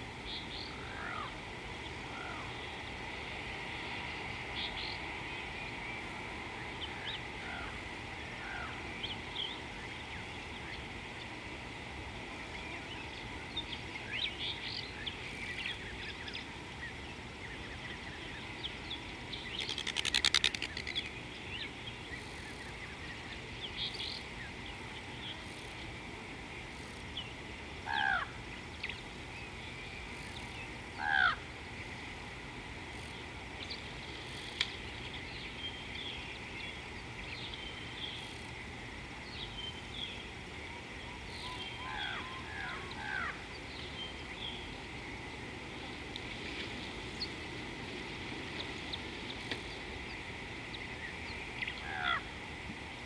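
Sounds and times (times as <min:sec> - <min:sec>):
steady background hiss: 0:00.0 - 0:53.0
loud rapid bird rattle: 0:19.5 - 0:21.2.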